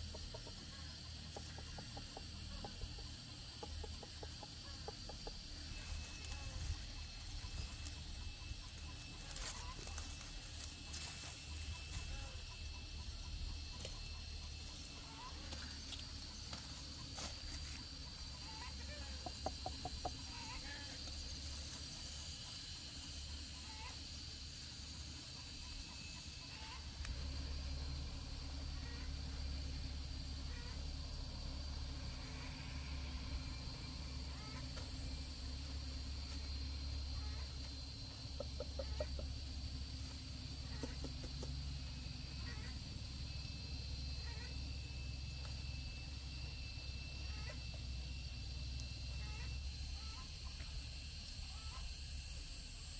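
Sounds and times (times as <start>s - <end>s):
chickens clucking: 0.0s - 29.7s, 33.4s - 42.7s
faint chirps: 0.0s - 52.9s
high-pitched insect drone: 0.0s - 52.9s.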